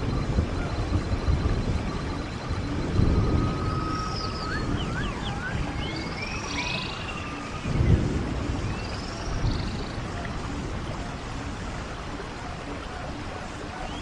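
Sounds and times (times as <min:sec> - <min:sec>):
songbirds chirping: 0:00.0 - 0:14.0
stream water gurgling: 0:00.0 - 0:14.0.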